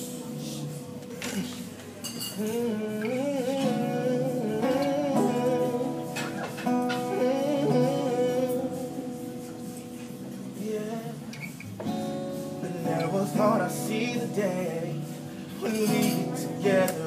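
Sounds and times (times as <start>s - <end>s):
guitar notes ringing: 0.0s - 17.0s
man's wordless singing: 2.4s - 9.8s, 10.5s - 11.3s, 12.5s - 17.0s.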